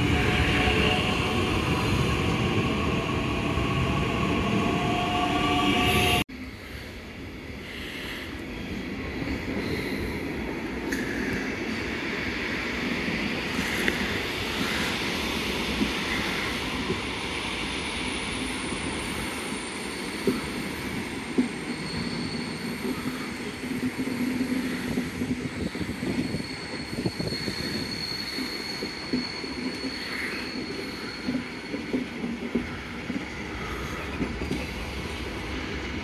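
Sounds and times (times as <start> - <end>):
wheels rumbling on rail: 0.0 - 7.2
high wheel squeal: 25.8 - 31.9.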